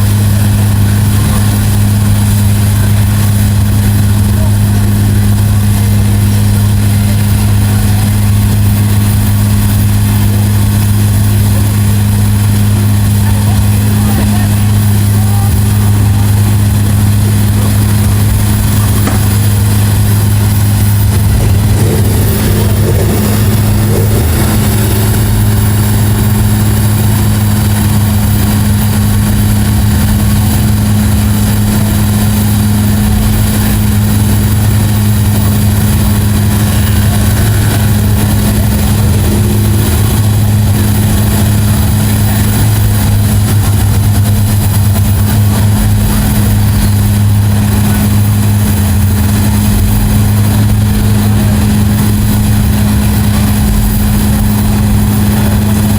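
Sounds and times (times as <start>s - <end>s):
large engine droning: 0.0s - 55.9s.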